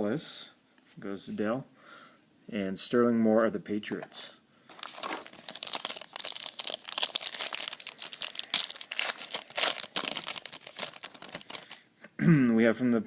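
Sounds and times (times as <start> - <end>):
foil wrapper crinkling and tearing: 4.7 - 11.8.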